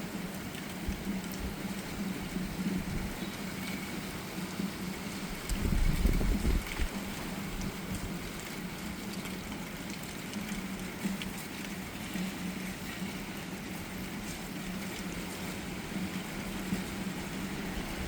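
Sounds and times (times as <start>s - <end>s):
rain ticking: 0.0s - 18.0s
storm wind blowing: 5.4s - 7.0s.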